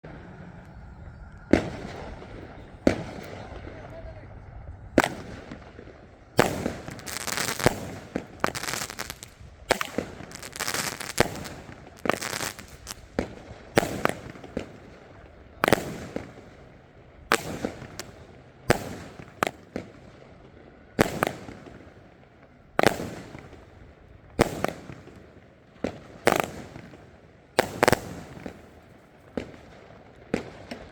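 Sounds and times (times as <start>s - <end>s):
firework bangs: 1.5s - 3.8s, 5.0s - 30.9s
firework crackling: 5.0s - 20.3s, 21.0s - 22.2s, 22.8s - 30.9s.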